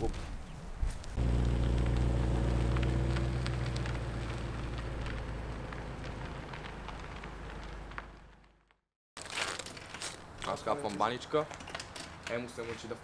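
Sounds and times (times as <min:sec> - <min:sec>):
light crackling: 0:01.0 - 0:08.8
car engine rumbling: 0:01.2 - 0:08.7.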